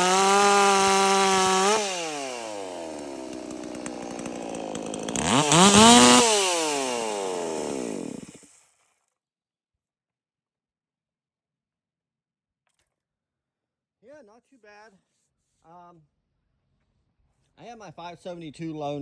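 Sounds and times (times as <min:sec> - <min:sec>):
chainsaw revving: 0:00.0 - 0:08.6.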